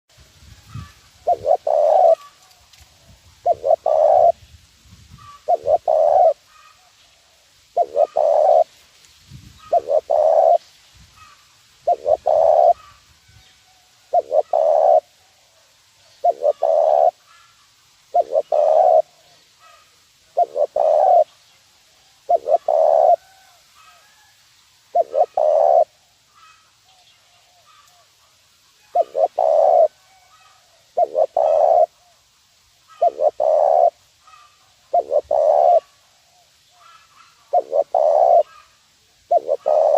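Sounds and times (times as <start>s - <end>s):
dove cooing: 0.7s - 4.4s, 5.2s - 8.7s, 9.6s - 10.6s, 11.2s - 13.0s, 14.1s - 15.6s, 16.2s - 17.5s, 18.1s - 21.3s, 22.2s - 24.2s, 24.9s - 26.6s, 28.8s - 32.2s, 32.9s - 39.9s.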